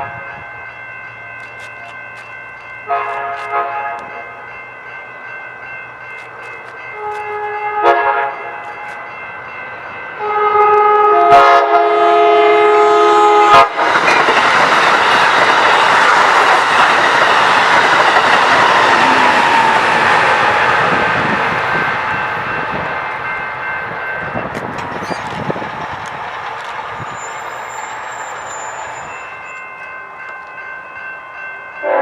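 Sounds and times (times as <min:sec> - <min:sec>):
crossing signal ringing: 0:00.0 - 0:32.0
train wheel and rail noise: 0:00.0 - 0:32.0
locomotive horn blasts: 0:02.9 - 0:04.2, 0:07.0 - 0:09.0, 0:10.2 - 0:13.9.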